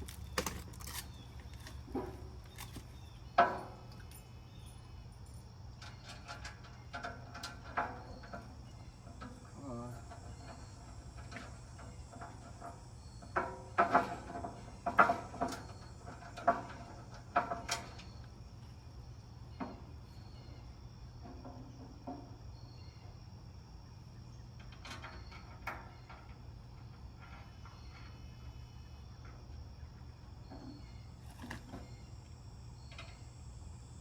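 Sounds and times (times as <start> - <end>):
metal parts knocking and clattering: 0.0 - 3.0.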